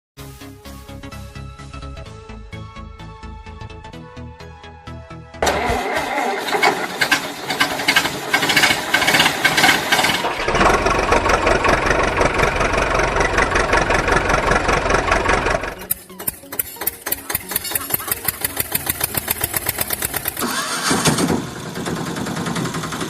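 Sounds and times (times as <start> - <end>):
engine running: 5.4 - 23.0.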